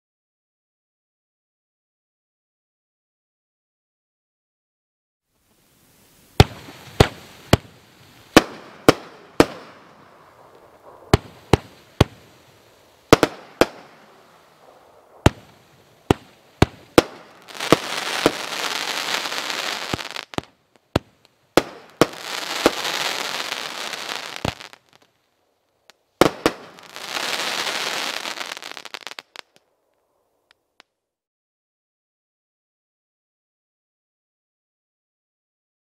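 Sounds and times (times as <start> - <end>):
fireworks crackling: 5.4 - 30.0.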